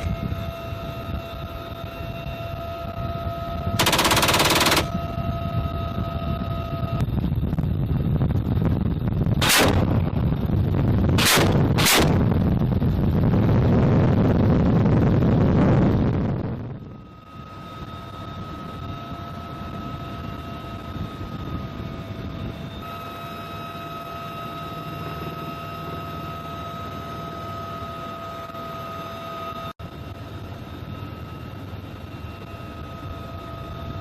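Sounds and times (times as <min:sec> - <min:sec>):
helicopter turbines and rotor: 0:00.0 - 0:34.0
machine gun bursts: 0:03.8 - 0:05.0, 0:09.4 - 0:09.8, 0:11.2 - 0:12.2.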